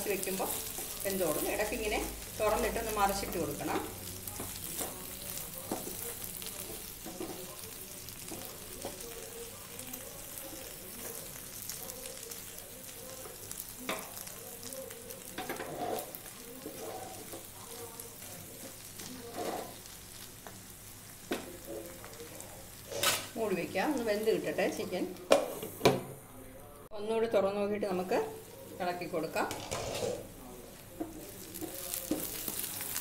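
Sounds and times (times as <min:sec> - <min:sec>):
chicken sizzling in oil: 0:00.0 - 0:25.6, 0:30.2 - 0:33.0
spatula scraping and knocking pan: 0:05.6 - 0:07.5, 0:15.4 - 0:17.4.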